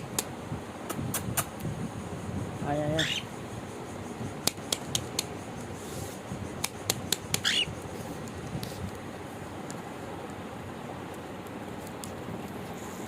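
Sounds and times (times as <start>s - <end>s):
parrot chirp: 2.9s - 3.4s, 7.2s - 7.8s
sharp clicks: 4.4s - 5.4s, 6.6s - 7.5s.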